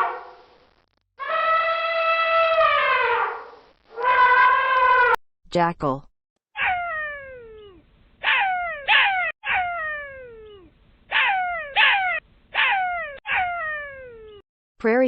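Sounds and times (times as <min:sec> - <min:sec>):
jackal calling: 0:06.5 - 0:14.4.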